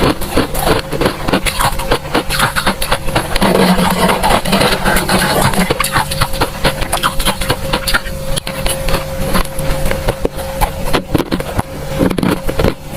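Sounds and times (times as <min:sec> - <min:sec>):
freezer frost crunching: 0:00.0 - 0:12.9
steady hum: 0:00.0 - 0:12.9.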